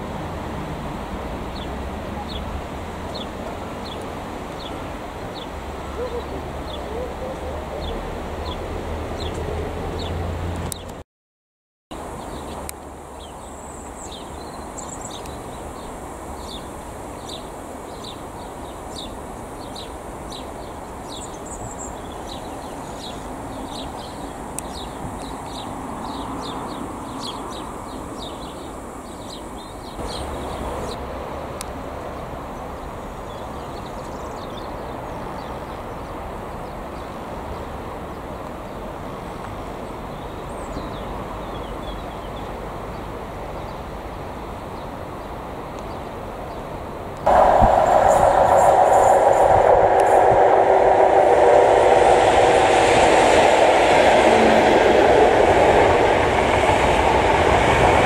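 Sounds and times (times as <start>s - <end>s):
steady low rumble: 47.3s - 58.0s.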